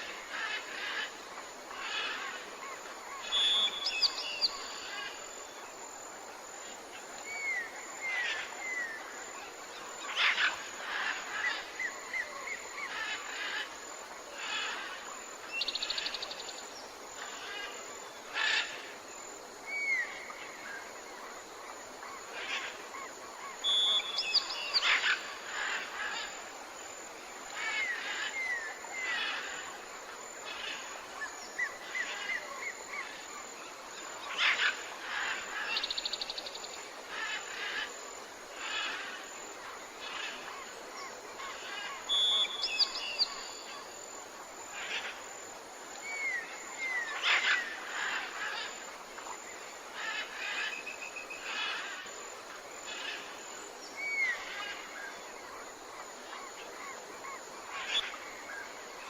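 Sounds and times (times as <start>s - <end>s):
insects or frogs humming: 0.0s - 59.0s
birds calling and trilling: 46.0s - 52.1s.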